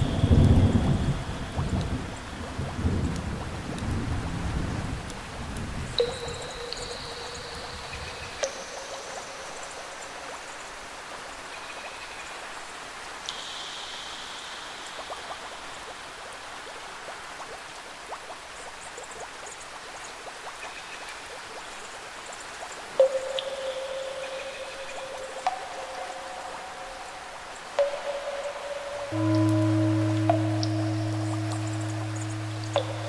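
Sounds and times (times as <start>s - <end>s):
steady rain with dripping drops: 0.0s - 33.0s
faint high tones: 23.0s - 33.0s.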